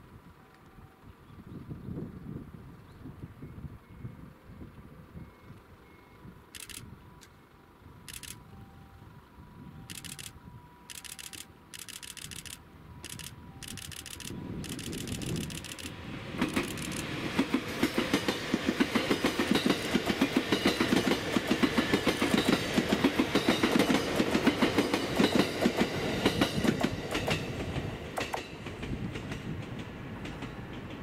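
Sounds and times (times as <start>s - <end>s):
train wheels clacking over rail joints: 10.9s - 31.0s.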